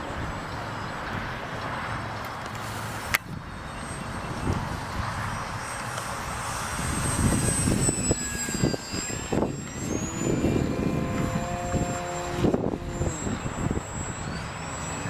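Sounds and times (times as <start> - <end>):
model airplane motor whine: 0.0 - 15.0
wind buffeting microphone: 3.0 - 15.0.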